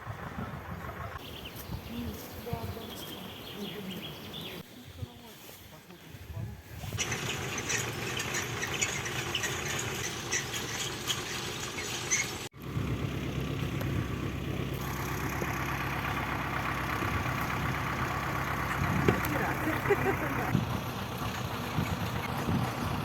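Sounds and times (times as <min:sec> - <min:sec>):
engine running: 0:00.0 - 0:01.6, 0:07.0 - 0:23.0
high squeaks: 0:07.0 - 0:12.5.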